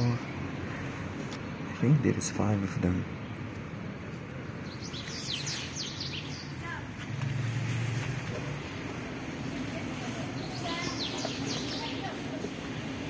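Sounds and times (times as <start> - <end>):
small bird chirping: 4.6 - 6.7, 9.4 - 12.4.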